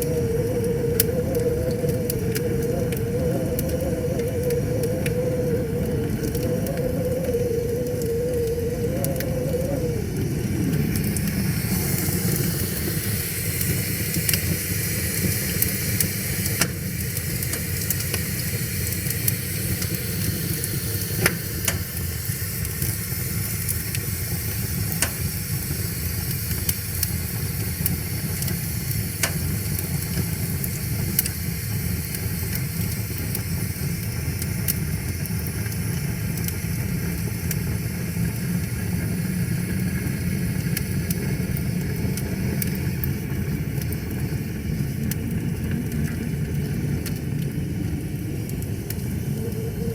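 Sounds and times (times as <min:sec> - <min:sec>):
wavering sliding tone: 0:00.0 - 0:12.9
wood fire crackling and popping: 0:00.0 - 0:49.9.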